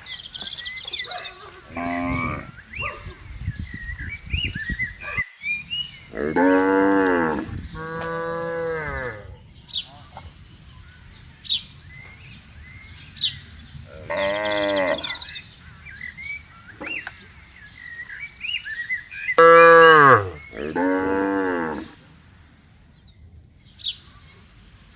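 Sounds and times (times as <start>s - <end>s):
cows mooing: 1.7s - 2.5s, 6.1s - 9.3s, 13.9s - 15.2s, 19.4s - 22.0s.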